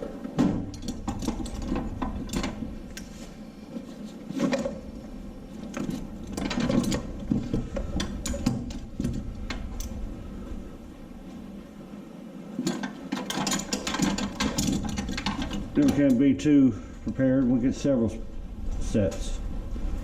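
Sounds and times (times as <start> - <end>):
metal hand tools clicking and clattering: 0.6 - 3.1, 5.7 - 10.0, 12.6 - 16.3.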